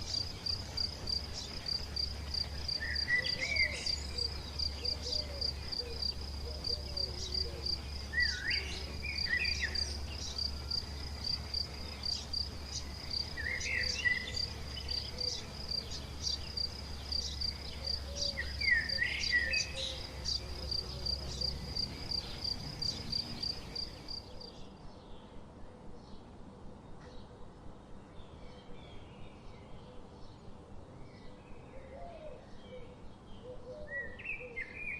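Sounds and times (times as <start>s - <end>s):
insect chirping trill: 0.0s - 24.4s.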